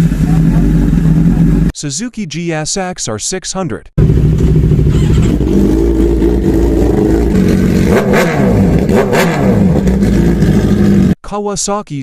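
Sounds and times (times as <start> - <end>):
motorcycle engine revving hard: 4.0 - 11.2.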